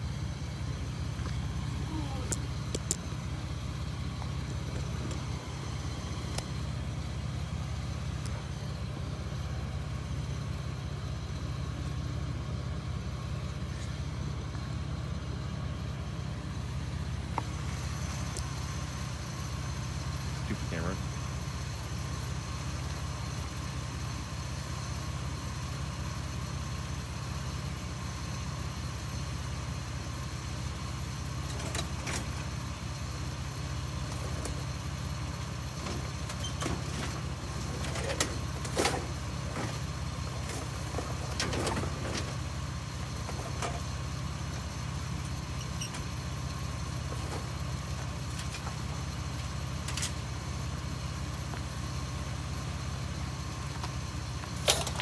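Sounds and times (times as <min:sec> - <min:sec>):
vehicle engine idling: 0:00.0 - 0:55.0
metal knocks and clanks: 0:35.8 - 0:42.5, 0:43.2 - 0:44.0.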